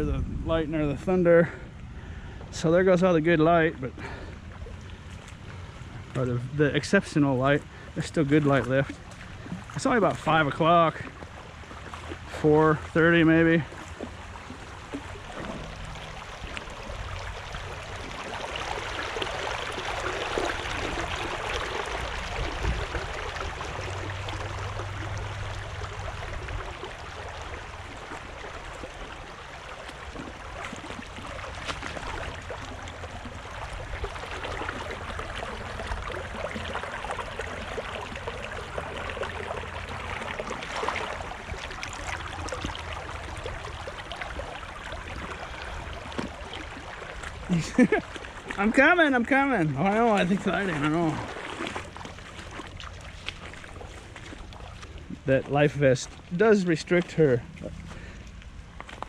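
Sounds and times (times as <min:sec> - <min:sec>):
creek water rushing: 0:00.8 - 0:59.0.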